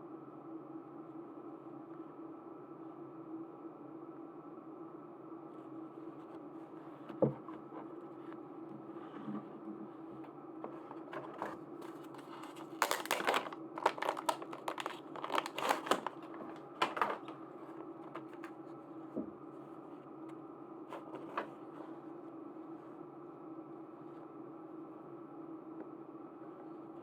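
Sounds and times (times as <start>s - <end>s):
steady low hum: 0.0s - 27.0s
plastic packaging crinkling: 10.7s - 18.6s.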